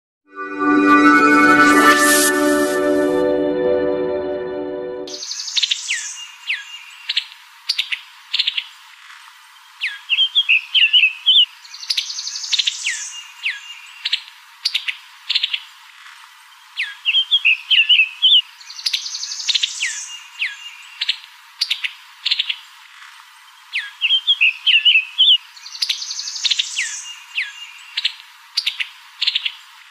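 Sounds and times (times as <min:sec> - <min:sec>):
electronic music: 0:00.3 - 0:05.2
bird song with trill: 0:05.1 - 0:07.1, 0:23.8 - 0:28.1.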